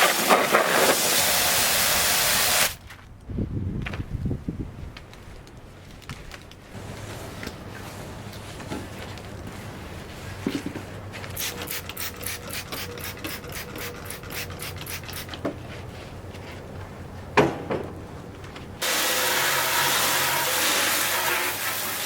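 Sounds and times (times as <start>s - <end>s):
loud steady hiss: 0.0s - 2.8s, 18.8s - 22.0s.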